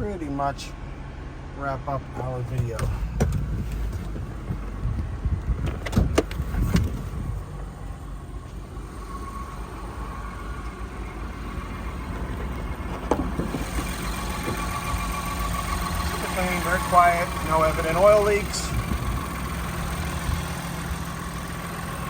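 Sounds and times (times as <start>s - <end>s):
quiet engine idling hum: 0.0s - 22.0s
car hood knocks and clicks: 2.6s - 7.0s, 12.9s - 13.8s.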